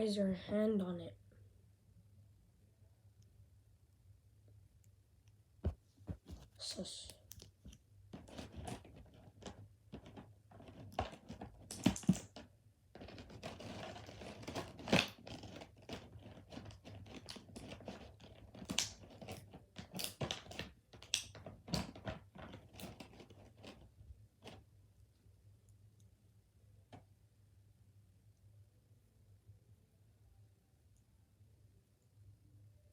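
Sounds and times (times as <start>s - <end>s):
plastic packaging crinkling and tearing: 7.3s - 12.4s, 13.0s - 23.8s.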